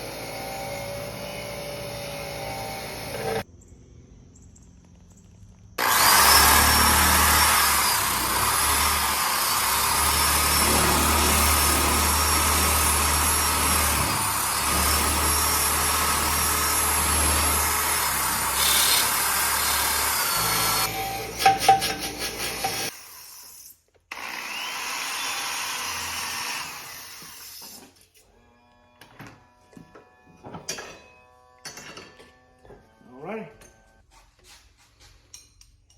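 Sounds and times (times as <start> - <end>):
power sander on rusty metal: 0.0 - 3.5, 5.8 - 23.4, 24.1 - 30.5.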